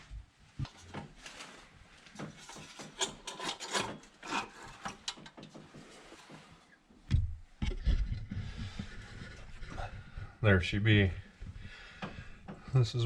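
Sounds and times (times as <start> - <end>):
objects being handled: 0.6 - 10.2.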